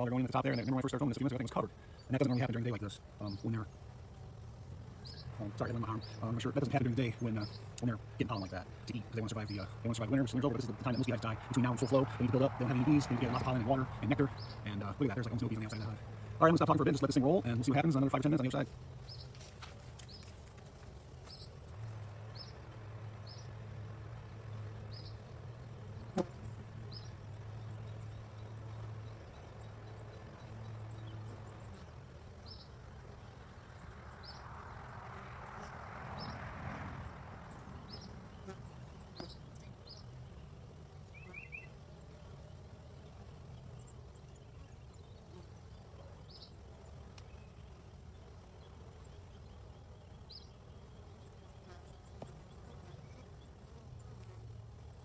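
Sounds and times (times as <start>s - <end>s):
low breeze rumble: 0.0s - 41.7s
beehive humming: 0.0s - 55.0s
honeybees buzzing: 0.0s - 55.0s
bird chipping: 4.8s - 19.4s, 41.1s - 41.8s
bird chirps: 5.0s - 6.3s, 14.2s - 14.7s, 41.1s - 41.8s.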